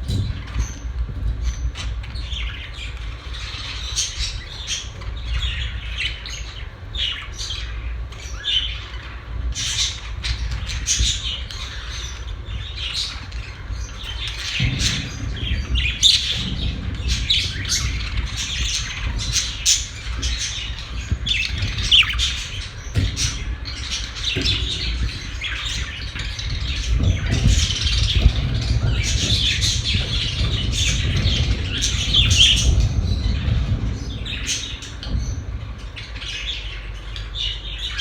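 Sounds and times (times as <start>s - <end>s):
budgerigars chirping: 1.5s - 35.4s
low hum: 10.2s - 37.6s.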